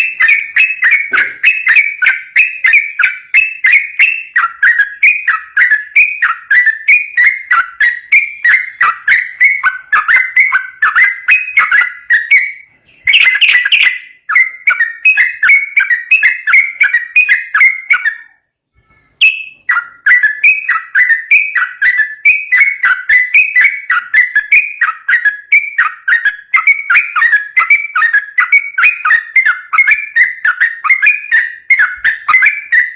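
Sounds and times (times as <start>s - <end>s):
bird singing bubbly falling notes: 7.5s - 18.2s.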